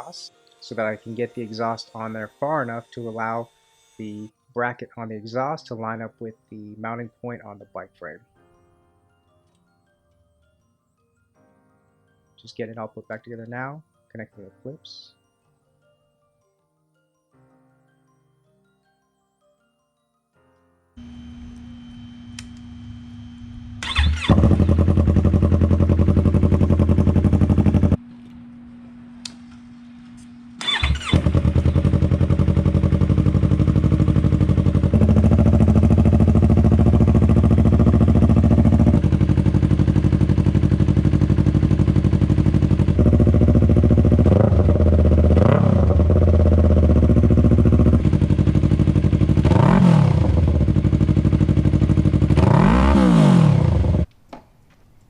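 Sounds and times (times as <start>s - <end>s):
motorcycle engine idling: 21.0s - 28.0s, 30.6s - 54.1s
motorcycle engine revving: 21.0s - 28.0s, 30.5s - 54.1s
motorcycle engine starting: 21.0s - 28.0s, 30.4s - 54.1s.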